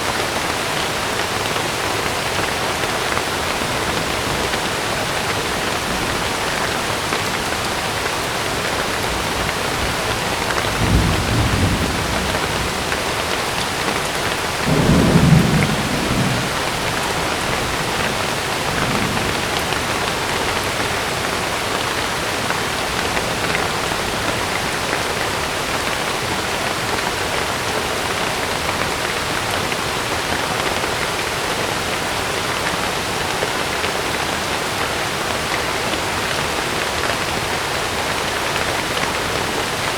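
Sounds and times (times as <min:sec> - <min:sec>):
heavy rain drumming on a tent: 0:00.0 - 0:39.9
thunder rumbling: 0:03.6 - 0:22.0.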